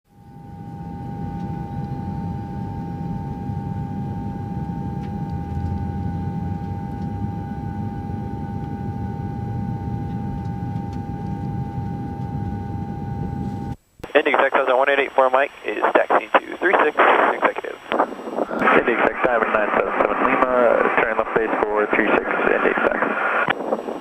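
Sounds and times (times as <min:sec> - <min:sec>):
steady high-pitched tone: 0:00.1 - 0:24.0
piston aircraft engine running: 0:00.4 - 0:13.8.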